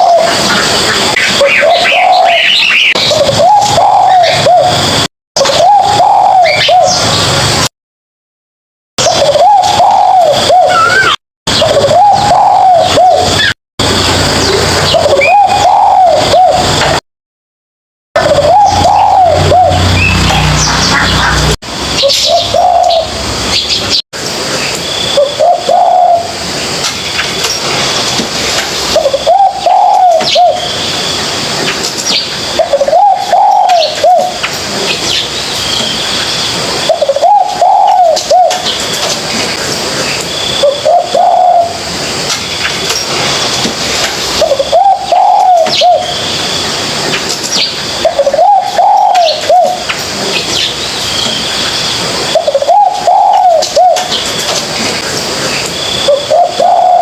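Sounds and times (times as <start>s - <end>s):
dove cooing: 0.0s - 7.0s, 9.0s - 13.5s, 14.4s - 17.0s, 18.2s - 23.2s, 25.2s - 26.4s, 28.9s - 30.8s, 32.5s - 34.4s, 36.8s - 38.8s, 40.6s - 41.9s, 44.4s - 46.2s, 48.0s - 49.9s, 52.3s - 54.5s, 56.0s - 57.0s.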